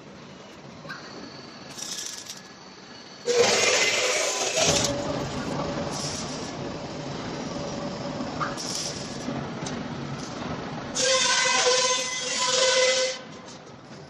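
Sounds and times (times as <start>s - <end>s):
loud machine hiss: 1.5s - 6.6s.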